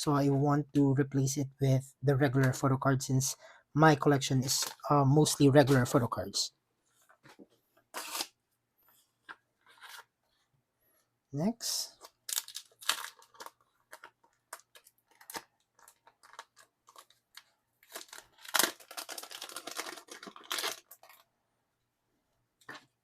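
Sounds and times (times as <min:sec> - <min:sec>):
packaging crinkling and tearing: 0:12.0 - 0:21.3.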